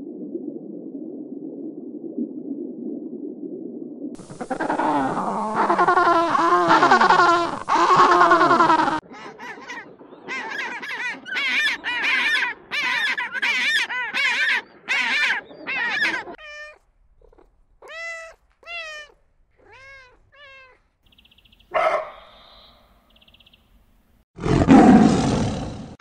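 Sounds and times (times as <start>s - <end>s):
cats meowing: 4.4s - 20.8s.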